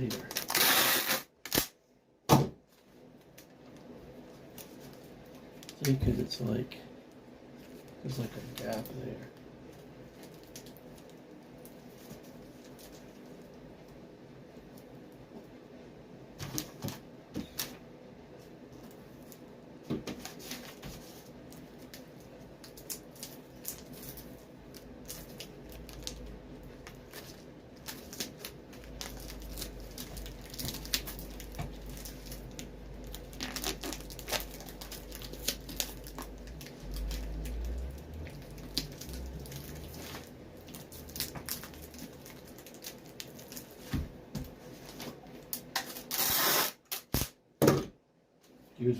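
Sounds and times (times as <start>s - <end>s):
tape tearing: 0.1s - 1.8s, 33.3s - 37.3s, 45.5s - 47.4s
clicks and crinkles of handling: 2.7s - 6.2s, 7.6s - 14.0s
low rumble: 36.4s - 40.7s.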